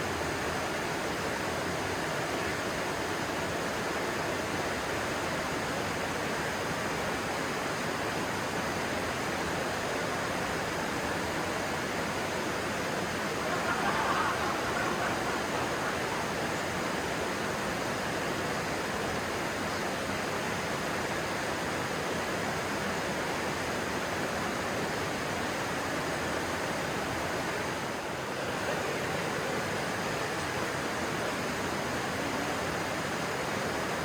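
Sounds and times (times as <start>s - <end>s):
stream flowing: 9.6s - 34.0s.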